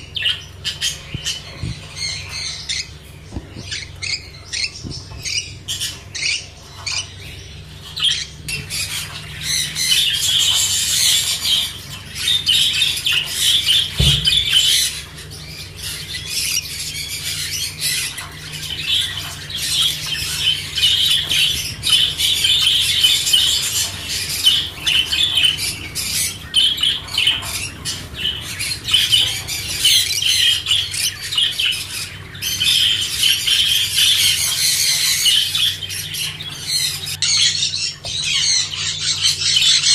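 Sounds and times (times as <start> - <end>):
flock of birds chattering: 0.0 - 39.9.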